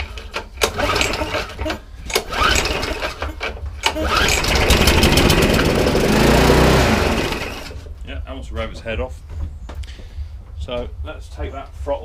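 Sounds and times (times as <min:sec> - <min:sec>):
lawnmower engine pull-started: 0:00.0 - 0:07.9.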